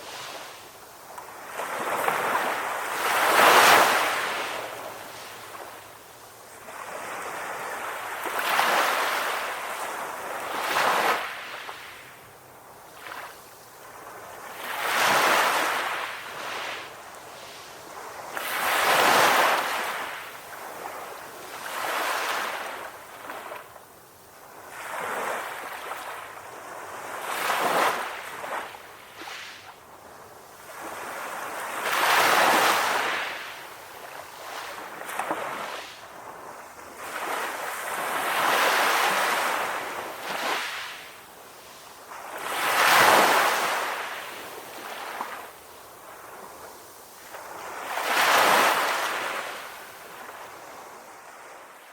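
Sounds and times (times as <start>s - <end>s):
ocean waves breaking on a beach: 0.0s - 51.9s.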